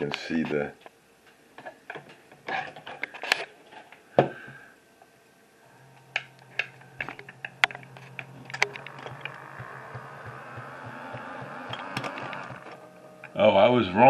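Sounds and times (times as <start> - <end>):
small motor humming with gear whir: 5.8 - 13.3
sharp ticks: 6.1 - 13.4.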